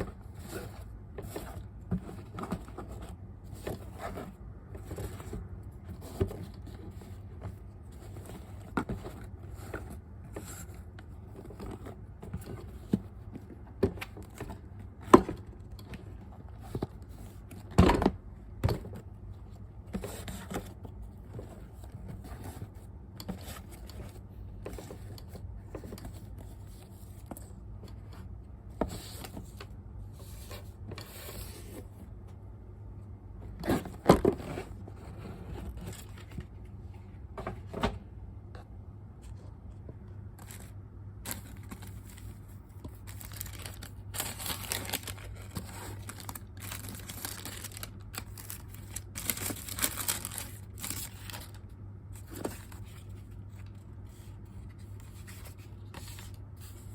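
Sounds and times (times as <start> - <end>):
steady low hum: 0.0 - 56.9
paper and packaging rustling: 18.7 - 28.1, 33.5 - 36.6, 40.4 - 56.9.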